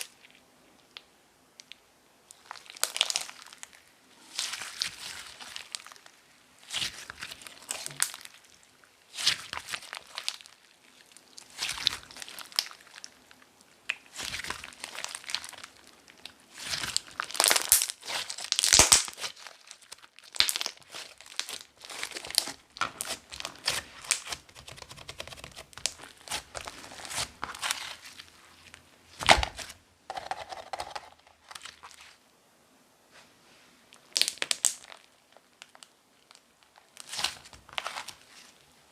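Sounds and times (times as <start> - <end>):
slime crackling and popping: 1.6 - 3.8, 11.3 - 13.2, 13.8 - 28.2, 34.0 - 38.3.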